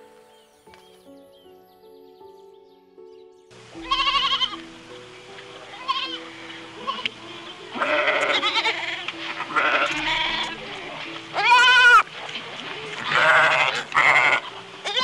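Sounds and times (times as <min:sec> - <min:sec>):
goat bleating: 0:03.8 - 0:04.6, 0:05.7 - 0:06.2, 0:06.9 - 0:12.1, 0:12.7 - 0:15.0.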